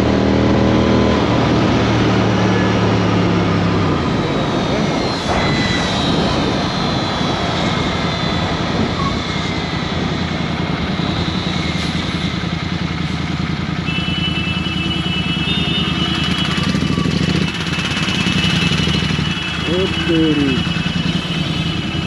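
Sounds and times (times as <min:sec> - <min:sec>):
motorcycle engine running: 0:12.2 - 0:22.0.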